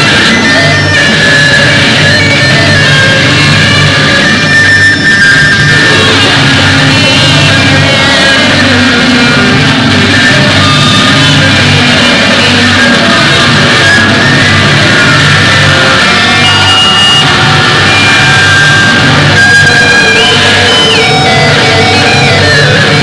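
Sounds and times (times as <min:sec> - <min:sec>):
rock music with distorted guitars: 0:00.0 - 0:23.0.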